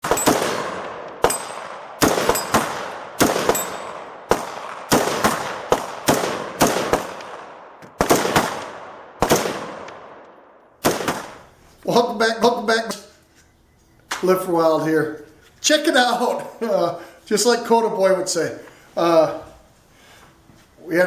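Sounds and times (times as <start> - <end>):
semi-automatic gunshots with echo: 0.0 - 11.5.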